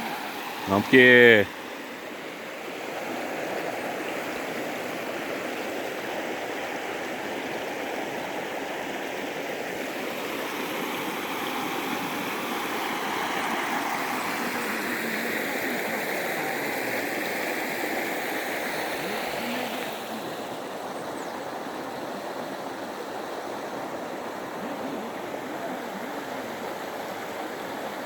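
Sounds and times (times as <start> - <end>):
waterfall roaring: 0.6 - 1.5.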